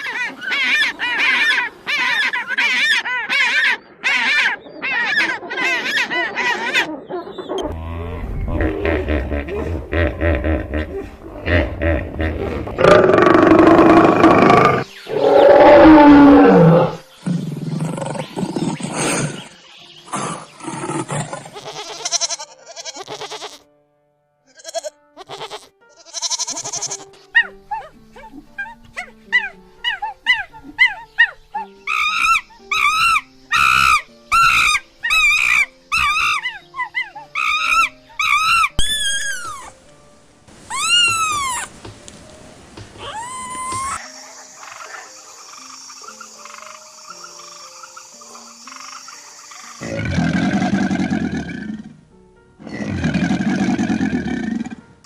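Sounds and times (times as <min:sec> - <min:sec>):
lion roaring: 0:07.6 - 0:19.4
faint animal chorus: 0:27.4 - 0:38.8, 0:43.0 - 0:51.9.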